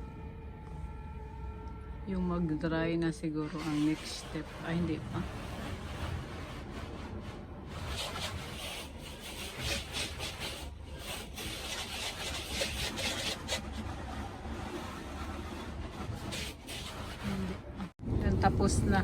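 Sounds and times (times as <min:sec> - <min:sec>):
brushes scrubbing truck: 0:03.4 - 0:18.0.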